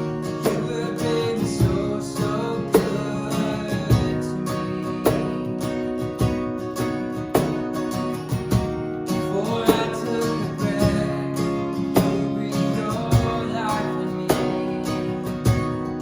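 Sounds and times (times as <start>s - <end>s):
strummed acoustic guitar: 0.0s - 16.0s
person singing: 0.4s - 5.1s, 9.2s - 15.7s
drum hits: 1.5s - 2.0s, 2.8s - 3.1s, 3.8s - 4.3s, 5.0s - 5.5s, 6.2s - 6.5s, 7.3s - 8.8s, 10.8s - 11.2s, 12.0s - 12.4s, 13.0s - 14.8s, 15.4s - 16.0s.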